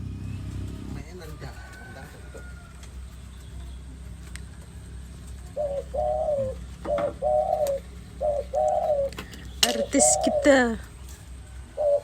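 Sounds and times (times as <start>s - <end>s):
dove cooing: 4.5s - 12.0s.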